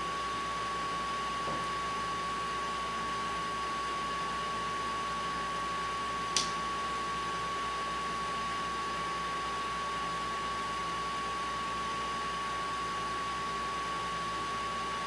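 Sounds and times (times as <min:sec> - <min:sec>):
sharp click: 0:06.4 - 0:06.6.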